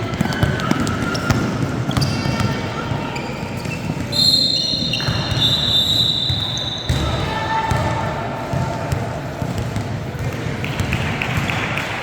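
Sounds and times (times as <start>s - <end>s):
basketball bouncing on gym floor: 0.0s - 4.2s, 4.8s - 11.9s
sneakers squeaking on court: 0.0s - 8.6s.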